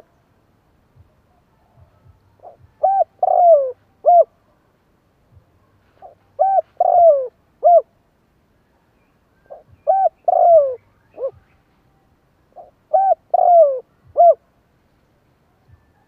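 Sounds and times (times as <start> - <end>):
dove cooing: 1.6 - 4.4, 6.0 - 7.9, 9.5 - 11.4, 12.5 - 14.4.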